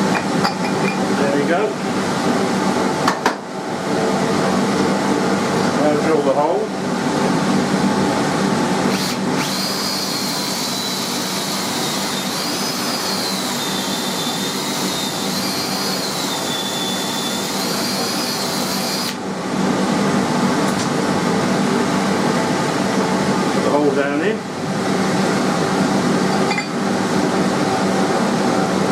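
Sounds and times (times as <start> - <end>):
steady fan-like hum: 0.0 - 28.9
electric drill boring into wood: 8.9 - 19.2.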